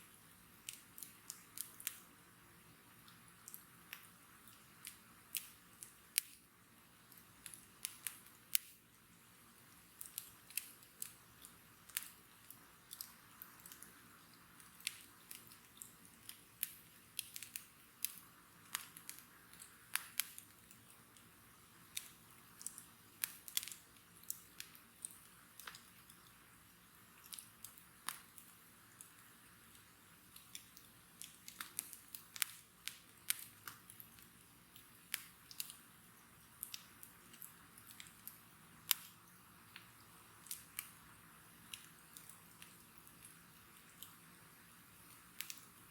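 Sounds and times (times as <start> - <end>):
faint steady hiss: 0.0 - 45.9
bonfire crackling and popping: 9.6 - 45.9.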